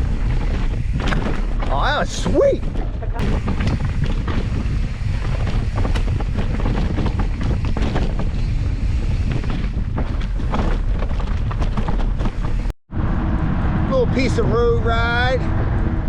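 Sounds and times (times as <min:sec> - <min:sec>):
bike rattling and knocking: 0:00.0 - 0:12.8
wind buffeting microphone: 0:00.0 - 0:16.0.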